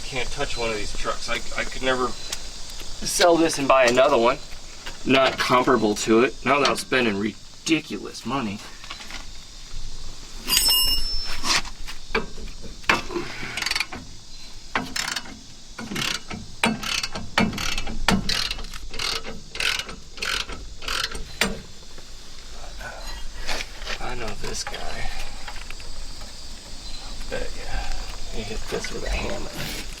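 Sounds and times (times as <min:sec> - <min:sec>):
metal clinking and ringing: 0:10.4 - 0:11.6
ratchet wrench clicking: 0:16.0 - 0:21.5.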